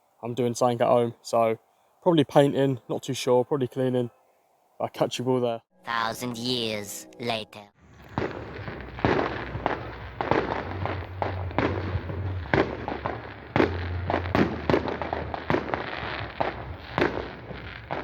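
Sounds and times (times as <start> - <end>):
fireworks bangs: 7.8 - 18.0.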